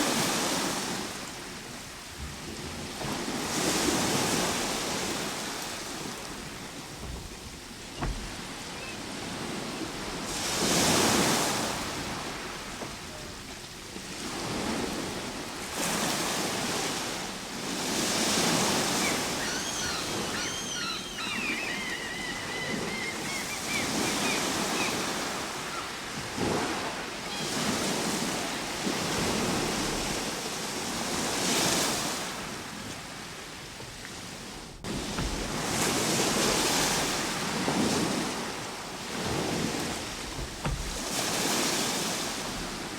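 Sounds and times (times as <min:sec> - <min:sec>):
ocean waves breaking: 0:00.0 - 0:42.9
bird chirping: 0:18.9 - 0:25.9.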